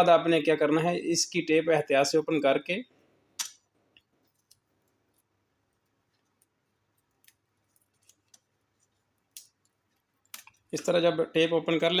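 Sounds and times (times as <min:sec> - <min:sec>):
electrical tape unwrapping crackles: 0:06.1 - 0:10.7.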